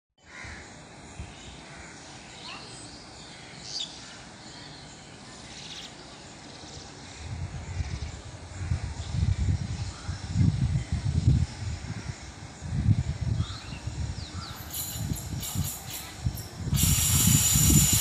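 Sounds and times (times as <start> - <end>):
birds calling: 0.2 - 18.0.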